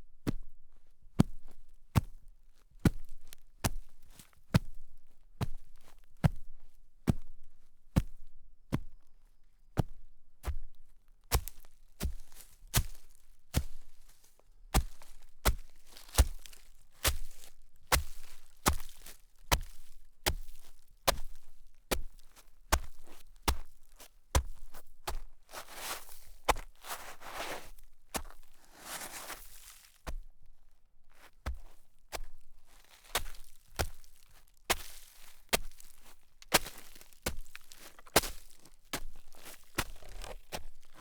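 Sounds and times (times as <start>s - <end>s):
footsteps crunching through snow: 11.4s - 30.2s, 31.2s - 41.0s.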